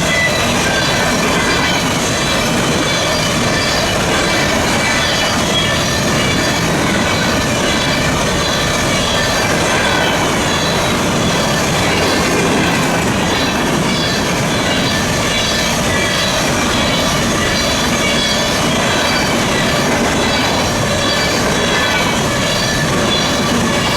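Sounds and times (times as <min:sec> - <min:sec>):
high wheel squeal: 0:00.0 - 0:23.9
train wheels clacking on rails: 0:00.0 - 0:23.9.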